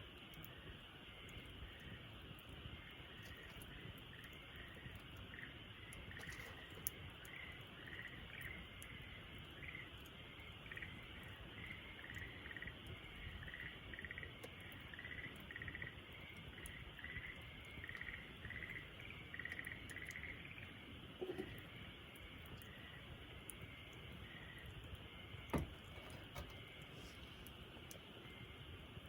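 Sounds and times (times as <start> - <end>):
wood fire crackling: 0.0 - 29.0
small animal chirping: 16.6 - 21.8.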